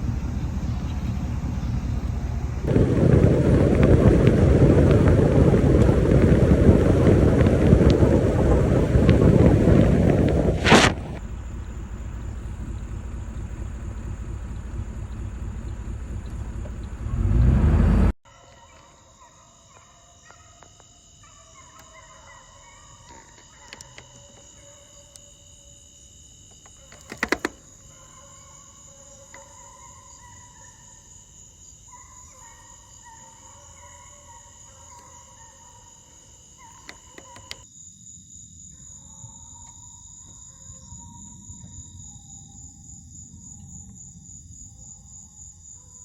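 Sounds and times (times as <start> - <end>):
insects chorus: 0.0 - 46.0
sharp clicks: 26.5 - 27.8, 36.6 - 37.6.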